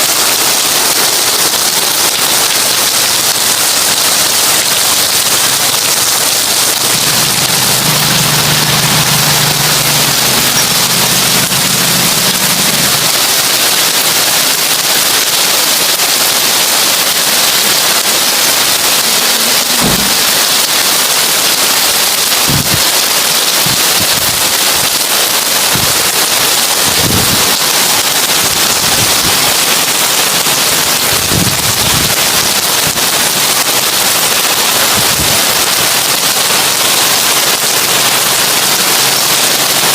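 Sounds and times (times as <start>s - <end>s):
heavy rain on a tin roof: 0.0s - 39.9s
low thuds: 19.8s - 20.3s.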